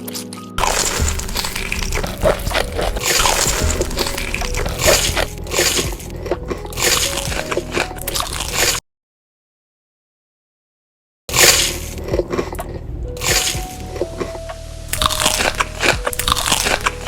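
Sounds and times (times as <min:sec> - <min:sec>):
background music: 0:00.0 - 0:08.8, 0:11.3 - 0:17.0
crunchy chewing of food: 0:00.6 - 0:08.8, 0:14.9 - 0:17.0.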